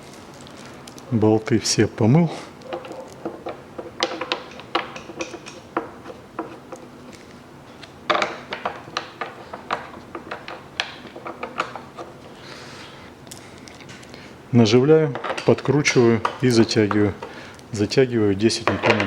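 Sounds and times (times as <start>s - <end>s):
metal bolts clicking and clinking: 2.6s - 6.9s.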